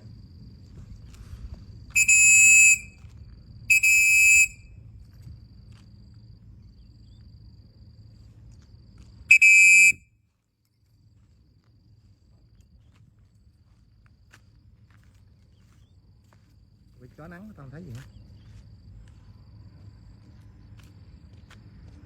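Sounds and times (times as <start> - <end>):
shrill whistle blasts: 1.9 - 3.0, 3.7 - 4.7, 9.3 - 10.0.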